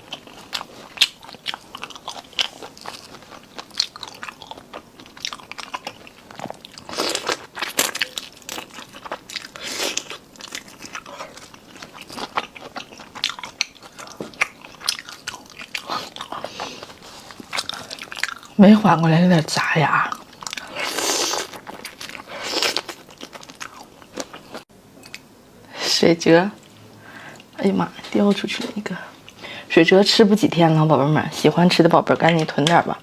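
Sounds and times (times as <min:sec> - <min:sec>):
chewing and crunching food: 0:00.0 - 0:25.2.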